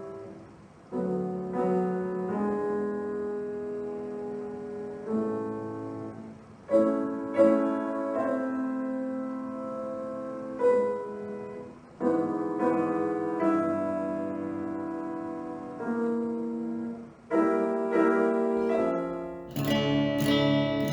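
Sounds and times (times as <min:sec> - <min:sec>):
solo piano chords: 0:18.6 - 0:20.9.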